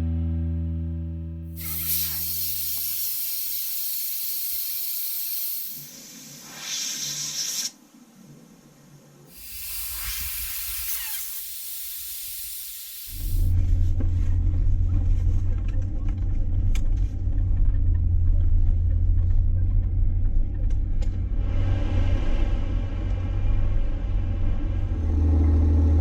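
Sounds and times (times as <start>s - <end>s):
steady hissing noise: 1.6s - 13.6s
low vehicle rumble: 13.2s - 26.0s.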